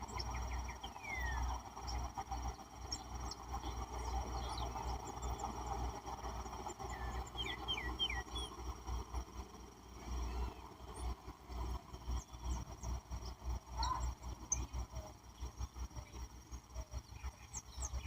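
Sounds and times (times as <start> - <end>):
birds chirping: 0.0 - 18.0
dense chatter: 9.8 - 17.6.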